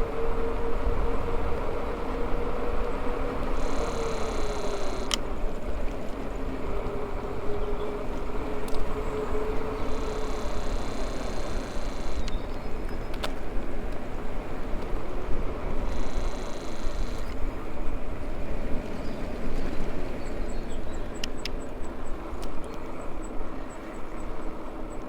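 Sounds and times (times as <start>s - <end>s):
electric motor whine: 0.1s - 5.8s, 6.6s - 12.6s, 14.9s - 17.4s
sharp clicks from bike: 3.4s - 5.4s, 9.8s - 14.1s.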